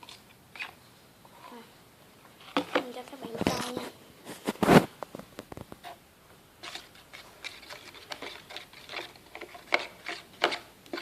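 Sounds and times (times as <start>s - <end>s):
spoon stirring slime: 6.6s - 11.0s.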